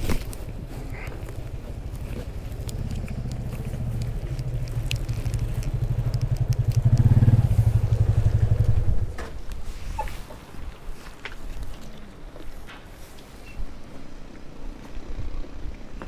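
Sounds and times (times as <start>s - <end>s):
vehicle engine pulsing: 0.0s - 9.6s.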